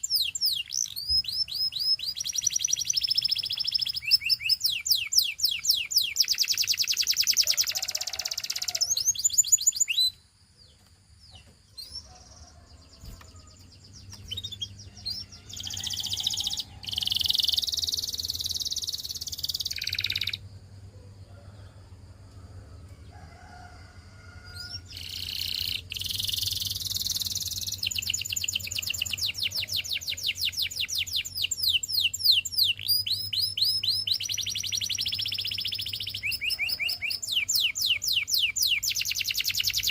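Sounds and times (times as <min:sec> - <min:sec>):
canary singing trills: 0:00.0 - 0:20.5, 0:24.5 - 0:39.9
faint low hum: 0:10.5 - 0:25.1.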